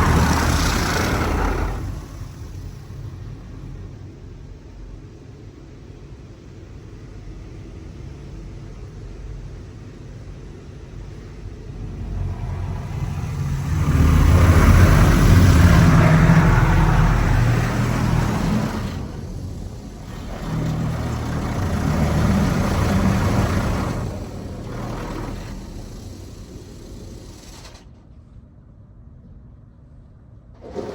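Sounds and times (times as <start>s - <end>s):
car wash machine rushing hiss: 0.0s - 4.1s, 11.0s - 28.0s.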